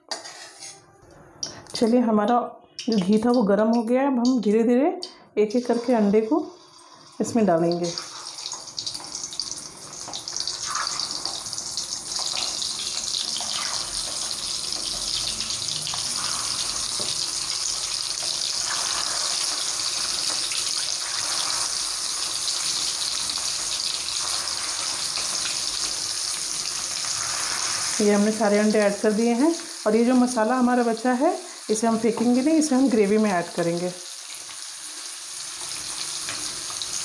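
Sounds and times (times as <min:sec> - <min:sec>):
eggs sizzling in hot fat: 0:05.6 - 0:37.0.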